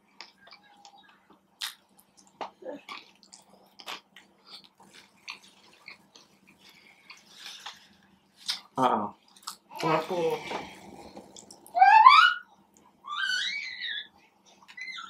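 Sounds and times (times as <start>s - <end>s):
person chewing crunchy food: 0.2s - 9.7s.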